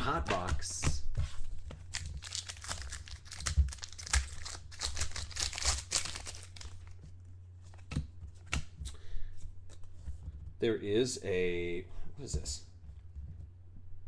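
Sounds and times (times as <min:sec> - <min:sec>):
cards clicking and rustling: 0:00.0 - 0:01.0, 0:01.7 - 0:07.0, 0:07.7 - 0:09.0
wrapper crinkling and tearing: 0:01.8 - 0:07.0.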